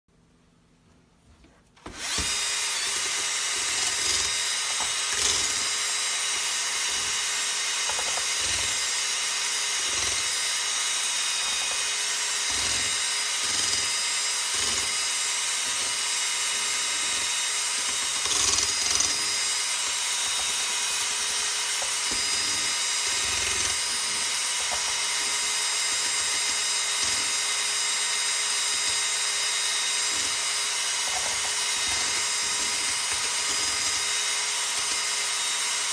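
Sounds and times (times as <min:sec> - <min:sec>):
power drill motor whining: 0:01.8 - 0:35.9.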